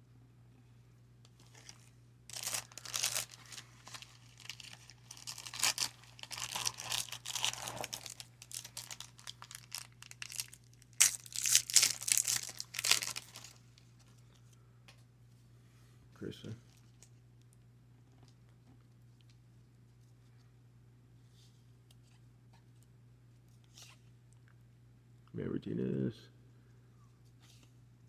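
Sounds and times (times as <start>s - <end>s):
wrapper ripping and rustling: 1.4s - 13.6s.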